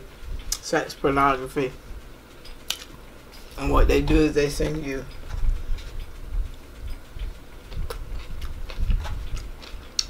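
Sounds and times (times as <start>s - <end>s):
person chewing noodles: 5.7s - 10.0s.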